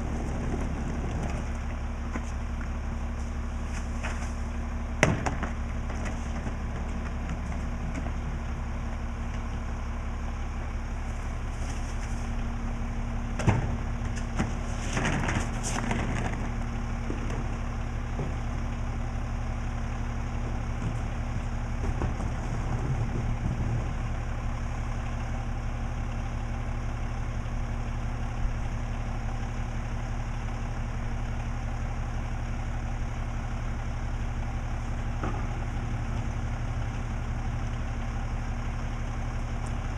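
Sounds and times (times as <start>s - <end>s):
truck engine idling: 0.0s - 39.9s
clatter: 13.4s - 18.5s.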